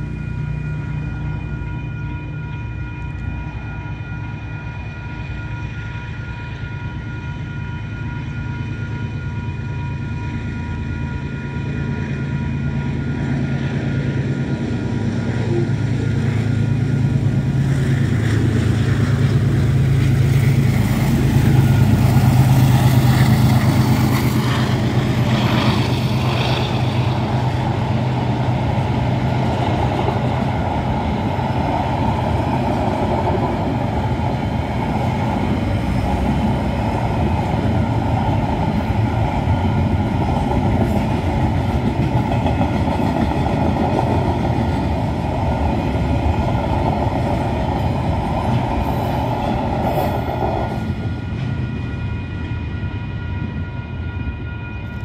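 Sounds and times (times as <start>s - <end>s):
crossing warning bell ringing: 0.0s - 14.8s, 47.6s - 55.0s
diesel locomotive engine hum: 0.0s - 55.0s
train wheels on rails: 0.0s - 55.0s.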